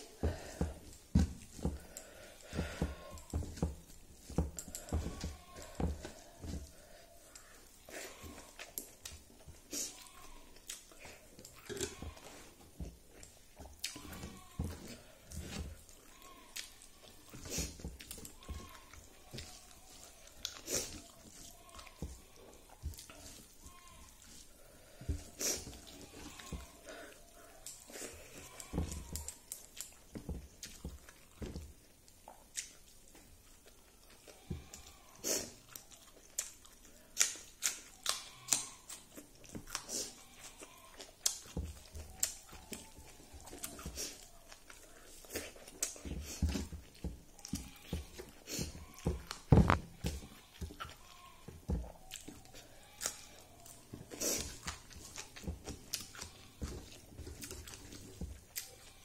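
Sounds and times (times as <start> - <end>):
wet chewing: 0.0 - 59.0
lip smacks and mouth clicks: 8.5 - 11.8, 32.2 - 34.3, 35.2 - 47.6.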